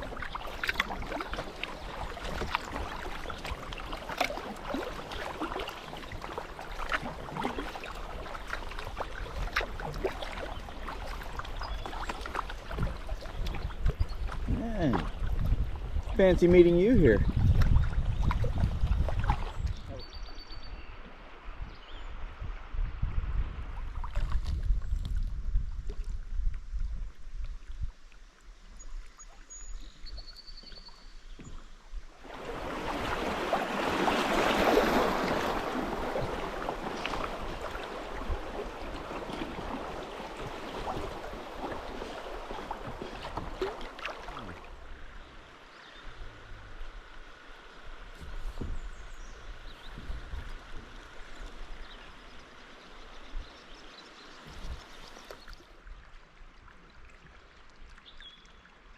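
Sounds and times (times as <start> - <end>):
rushing river water: 0.0 - 24.8, 27.2 - 58.9
low wind rumble on microphone: 12.6 - 30.3, 47.9 - 52.0.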